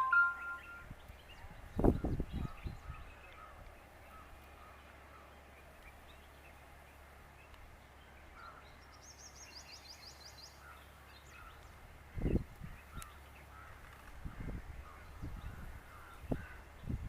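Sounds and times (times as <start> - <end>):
fast high trill: 0.0 - 0.8
faint bird chirps: 0.0 - 5.3.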